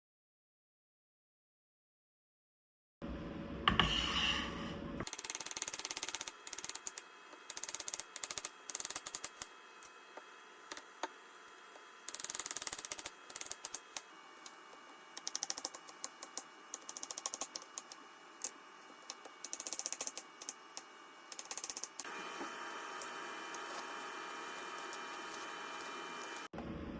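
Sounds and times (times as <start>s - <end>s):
rapid sharp mechanical clicks: 5.1s - 9.6s, 12.0s - 14.1s, 15.2s - 22.1s.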